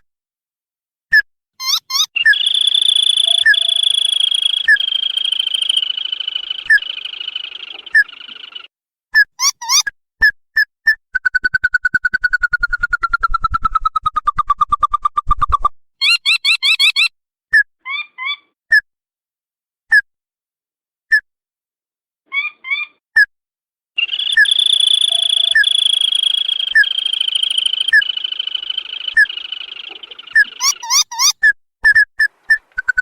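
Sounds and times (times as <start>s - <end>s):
bird call notes: 1.6s - 8.7s, 24.0s - 31.4s
continuous high whine: 3.0s - 8.6s, 24.1s - 30.6s
trilled bird bursts: 24.0s - 31.4s.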